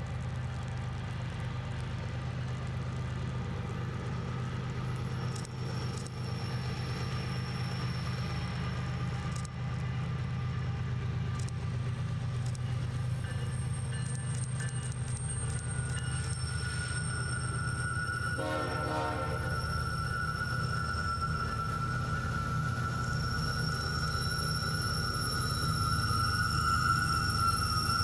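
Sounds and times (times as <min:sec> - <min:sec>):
freight train rumbling past: 0:17.7 - 0:25.8.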